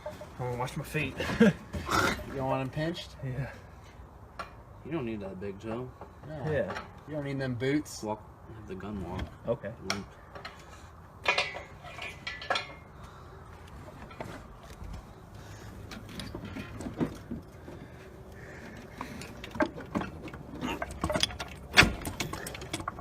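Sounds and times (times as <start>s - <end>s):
metal clinks and knocks: 11.2s - 13.0s, 18.6s - 23.0s.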